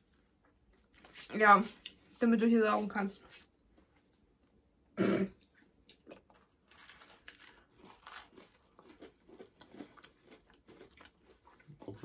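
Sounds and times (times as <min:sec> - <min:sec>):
crunchy chewing: 0:05.9 - 0:12.0.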